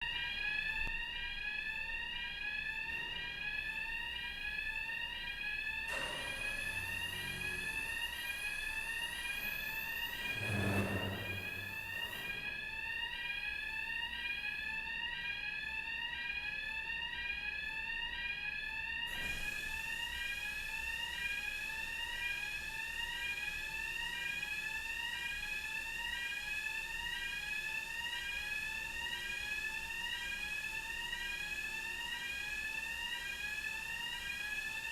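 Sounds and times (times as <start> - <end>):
rising electronic warning tone: 5.9 - 12.8
low rumble: 10.2 - 12.1.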